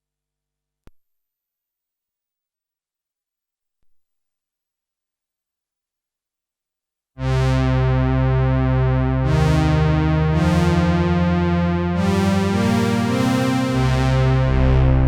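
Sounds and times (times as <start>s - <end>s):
synthesizer sustained chords: 7.2s - 15.0s.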